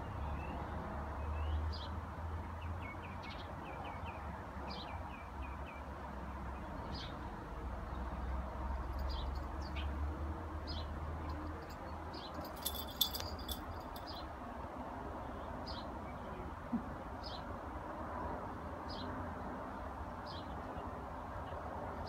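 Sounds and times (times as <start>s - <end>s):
high jingle: 11.5s - 14.2s.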